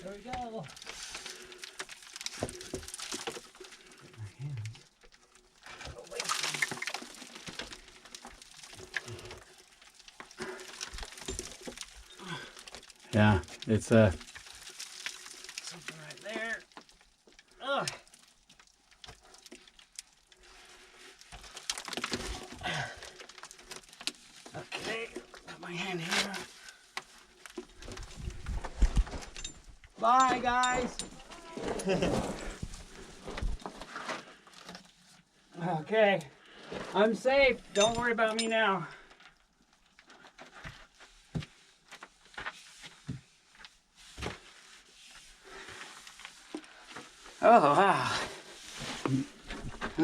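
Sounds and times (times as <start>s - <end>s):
knocks and scrapes on rock: 0.0s - 3.8s, 21.2s - 35.0s
rocks and gravel scraping: 0.0s - 35.3s, 35.9s - 50.0s.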